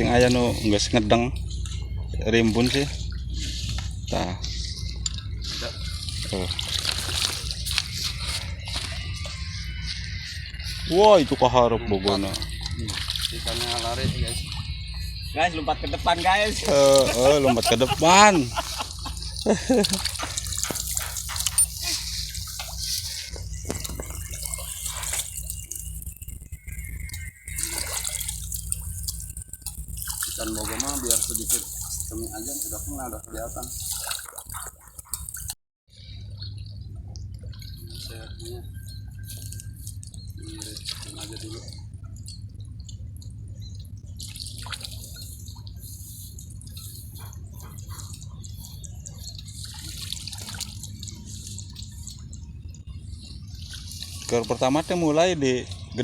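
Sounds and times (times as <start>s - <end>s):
steady low rumble: 0.0s - 35.4s, 36.0s - 56.0s
steady low hum: 0.0s - 56.0s
water splashing from wading: 0.0s - 56.0s.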